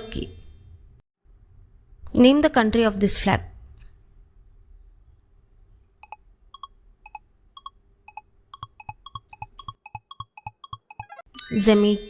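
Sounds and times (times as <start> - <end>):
countdown timer ticks: 6.0 - 11.3.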